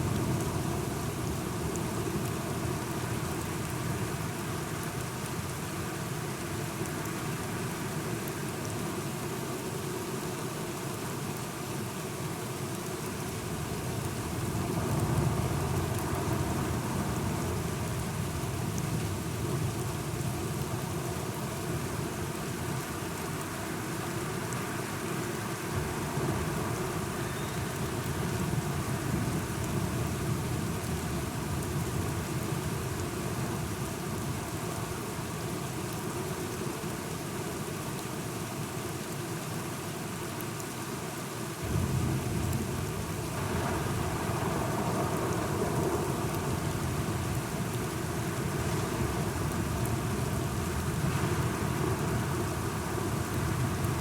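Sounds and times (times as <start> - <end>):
steady rainfall: 0.0 - 54.0
low rolling thunder: 41.6 - 47.5.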